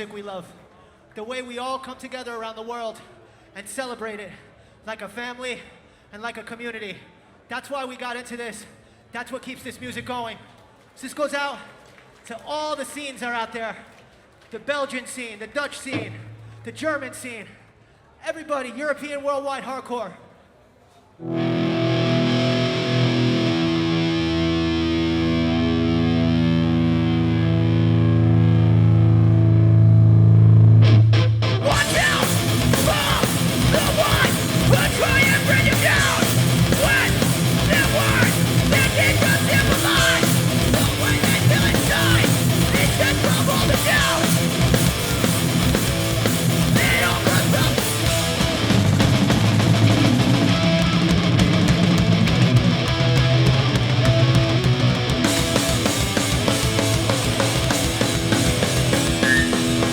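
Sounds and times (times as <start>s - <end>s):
distorted guitar chord: 21.2s - 59.9s
punk band playing live: 21.3s - 28.9s, 30.8s - 59.9s.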